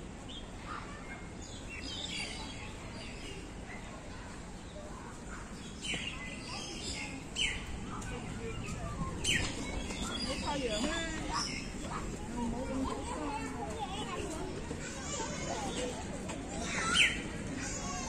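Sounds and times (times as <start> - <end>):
faint distant voices: 0.0 - 18.0
outdoor background noise: 0.0 - 18.0
birds chirping: 4.6 - 14.3.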